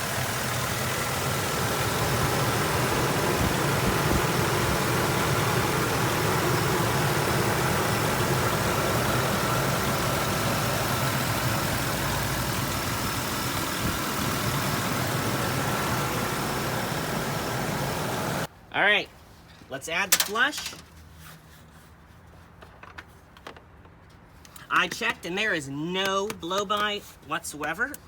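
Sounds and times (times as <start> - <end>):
truck engine idling rough: 0.0 - 18.5.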